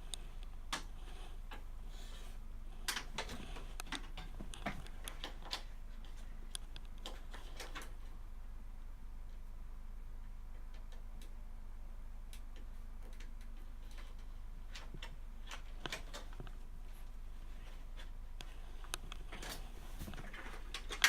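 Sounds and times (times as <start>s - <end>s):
computer parts clicking and tapping: 2.8s - 8.1s, 10.3s - 11.4s, 12.3s - 16.6s, 18.0s - 21.0s.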